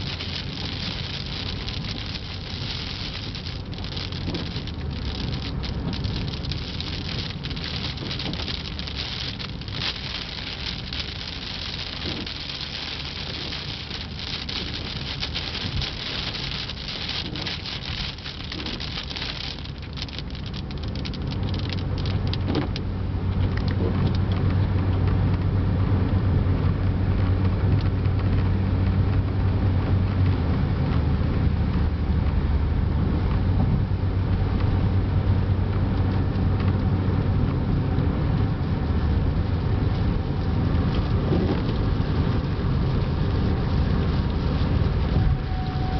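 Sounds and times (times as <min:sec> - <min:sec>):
car engine and tyre rumble: 0:00.0 - 0:45.9
rain hissing on windshield: 0:00.0 - 0:45.9.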